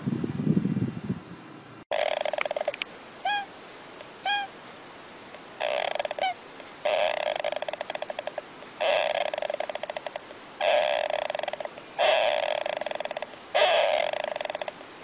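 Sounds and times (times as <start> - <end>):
bird rattling chatter: 1.9 - 2.8, 5.6 - 14.8
bird single calls bending down: 5.6 - 9.7.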